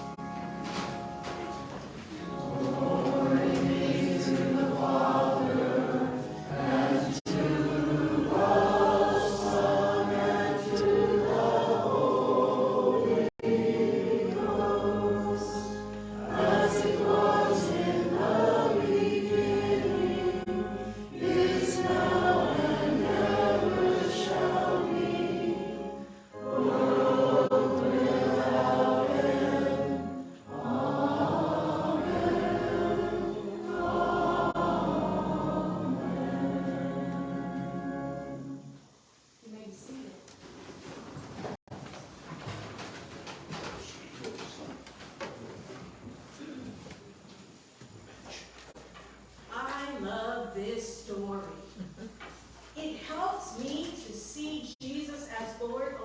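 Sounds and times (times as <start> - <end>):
choir singing: 2.1 - 38.9.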